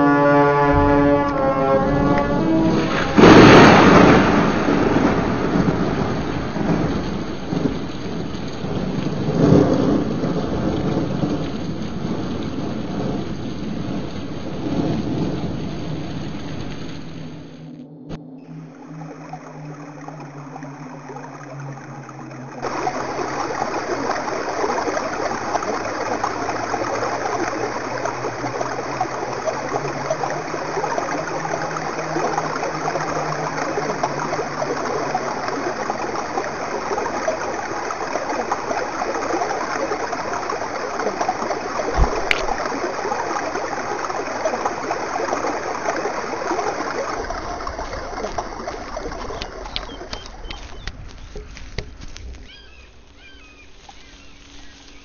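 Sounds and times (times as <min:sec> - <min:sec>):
stream rushing: 0:00.0 - 0:17.7, 0:18.4 - 0:55.0
low hum: 0:00.0 - 0:55.0.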